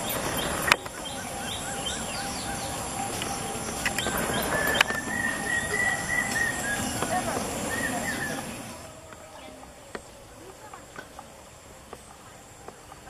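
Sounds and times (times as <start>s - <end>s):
high whistling tone: 0.0s - 9.8s
birds chirping: 0.0s - 13.0s.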